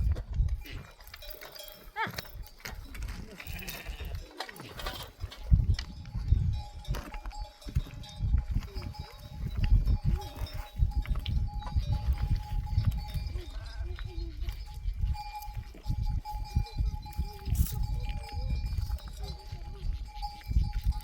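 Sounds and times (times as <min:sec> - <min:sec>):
animal bells ringing: 0:00.0 - 0:21.0
sheep and goats bleating: 0:03.0 - 0:05.2, 0:13.1 - 0:14.8.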